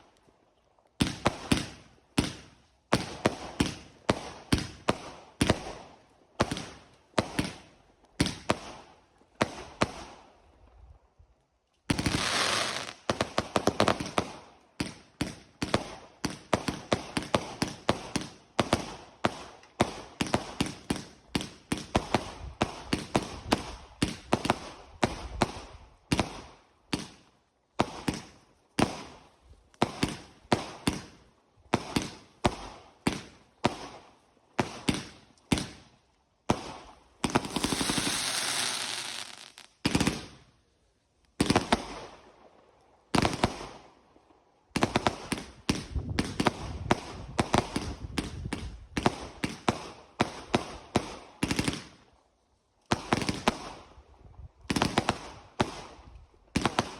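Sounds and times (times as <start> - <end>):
fireworks bangs: 11.9 - 13.2, 37.2 - 40.2
fireworks crackling burst: 11.9 - 13.4, 37.2 - 40.4.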